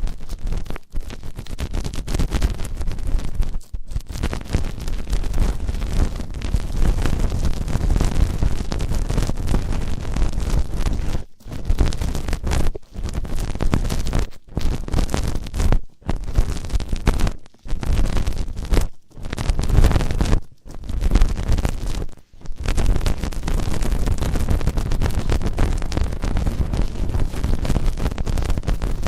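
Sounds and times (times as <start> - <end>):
scratching against microphone: 0.0 - 29.0.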